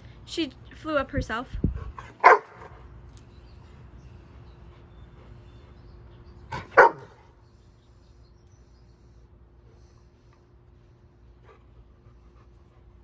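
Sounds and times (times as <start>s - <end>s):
dog barking: 2.2s - 2.7s, 6.7s - 7.2s.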